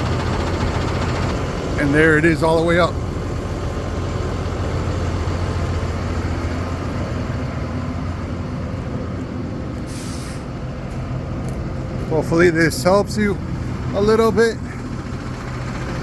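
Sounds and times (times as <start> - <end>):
truck engine idling: 0.0 - 16.0
short hiss: 9.9 - 10.5.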